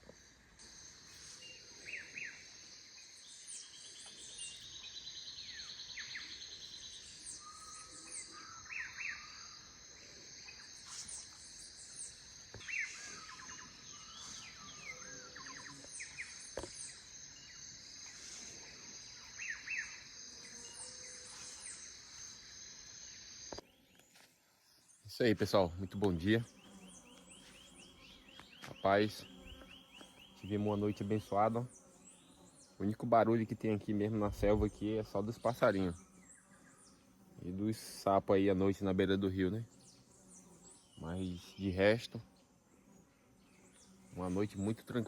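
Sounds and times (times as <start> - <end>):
high insect drone: 0.0 - 45.0
birds chirping and whistling: 3.3 - 9.6, 10.5 - 17.6.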